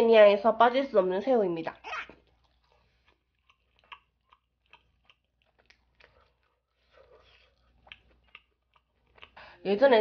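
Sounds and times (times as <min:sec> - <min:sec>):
chewing mouth clicks: 0:01.9 - 0:09.4.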